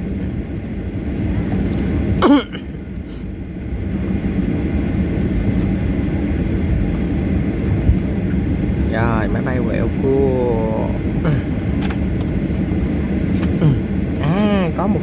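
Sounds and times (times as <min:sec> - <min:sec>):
jet engines low rumble: 0:00.0 - 0:15.0.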